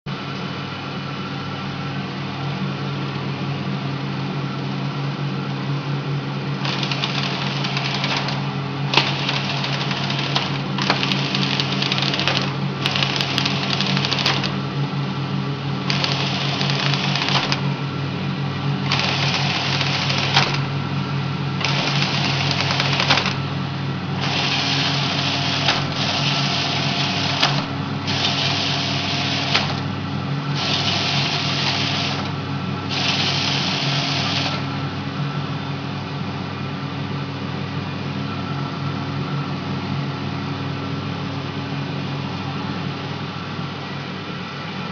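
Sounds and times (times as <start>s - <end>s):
wrapping machine motor hum: 5.3s - 36.0s
machine click: 6.6s - 14.6s, 15.9s - 17.7s, 18.9s - 20.7s, 21.6s - 23.4s
machine hissing bursts: 6.6s - 14.6s, 15.9s - 17.7s, 18.8s - 20.7s, 21.6s - 23.4s, 24.2s - 29.9s, 30.5s - 34.7s.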